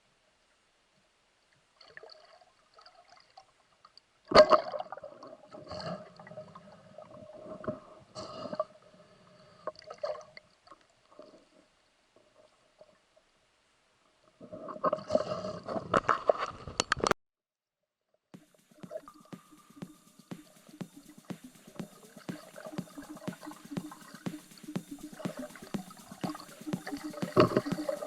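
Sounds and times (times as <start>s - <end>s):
water gurgling and sloshing: 24.9s - 28.0s.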